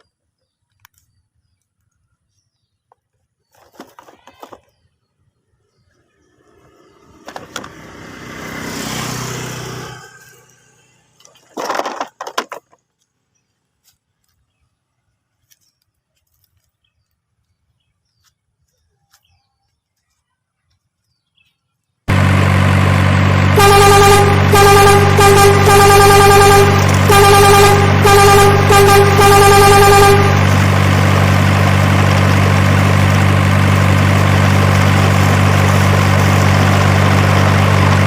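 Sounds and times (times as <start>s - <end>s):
motor vehicle passing: 5.8s - 11.6s, 22.1s - 38.0s
loud steady held tones: 22.1s - 38.0s.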